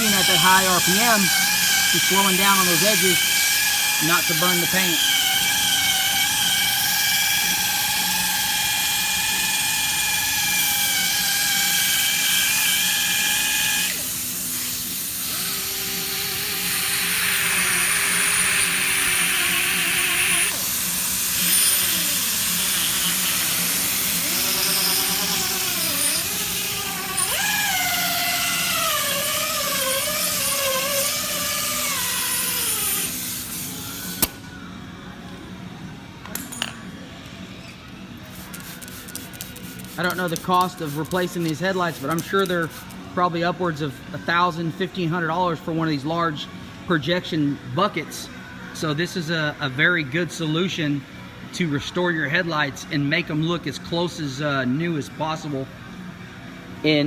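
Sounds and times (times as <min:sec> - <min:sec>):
orbital polisher whining: 0:00.0 - 0:10.0.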